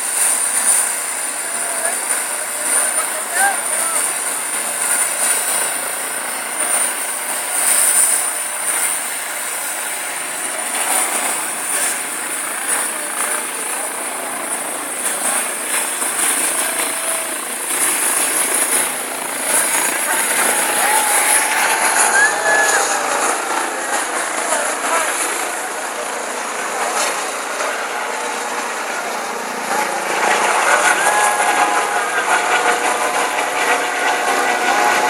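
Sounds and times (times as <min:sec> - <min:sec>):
helicopter engine and rotor: 0:00.0 - 0:35.0
high-pitched whine: 0:00.0 - 0:35.0.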